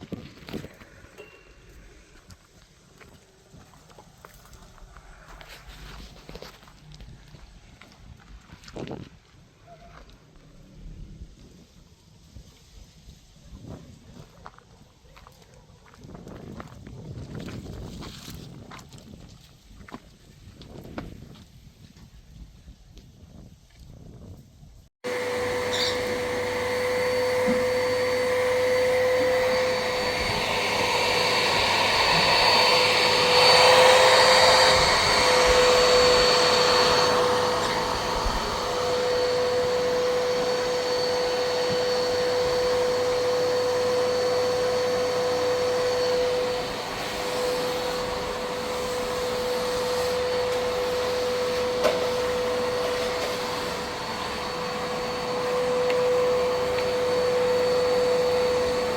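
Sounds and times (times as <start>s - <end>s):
small electric motor whining: 25.1s - 58.9s.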